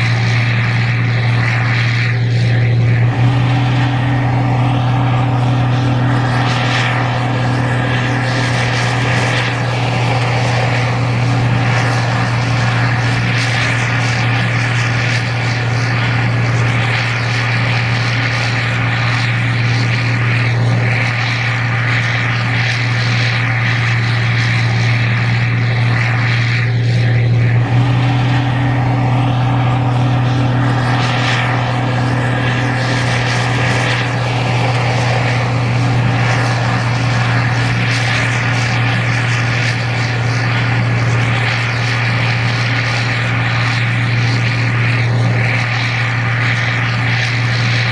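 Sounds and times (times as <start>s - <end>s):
combine harvester engine drone: 0.0s - 47.9s.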